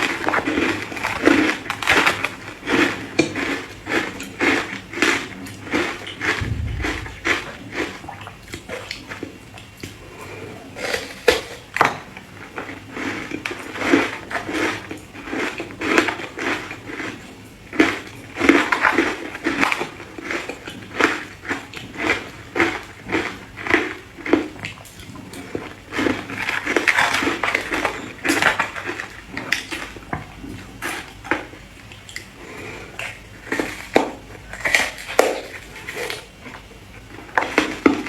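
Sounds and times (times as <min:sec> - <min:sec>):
ice crunching being chewed: 0:00.0 - 0:06.2, 0:12.5 - 0:29.9, 0:32.0 - 0:38.0.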